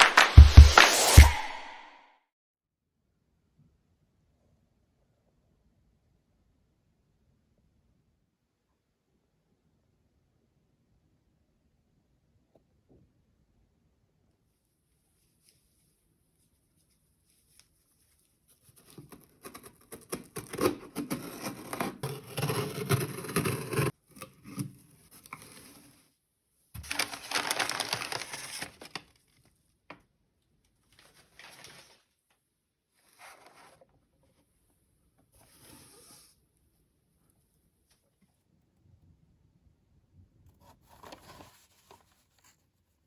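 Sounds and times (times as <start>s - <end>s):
cardboard box packaging handled: 26.8s - 29.0s.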